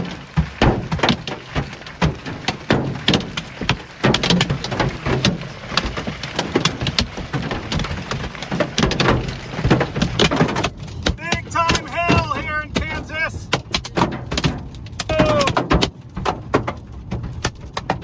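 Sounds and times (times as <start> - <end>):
hailstones striking hard surfaces: 0.0 - 18.0.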